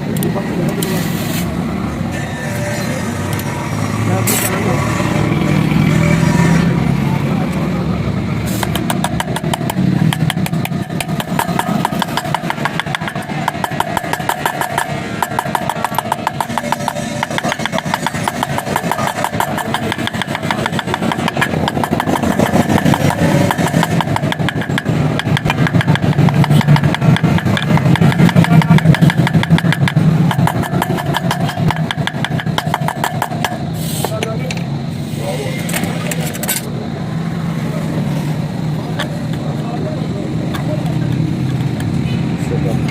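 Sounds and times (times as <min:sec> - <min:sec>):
motorcycle engine running: 0:07.8 - 0:33.7.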